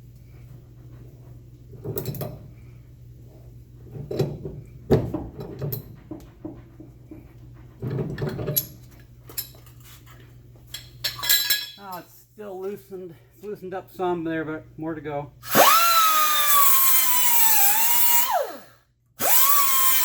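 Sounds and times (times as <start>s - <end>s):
steady low hum: 0.0s - 15.5s
metal hand tools clanking: 10.8s - 12.0s.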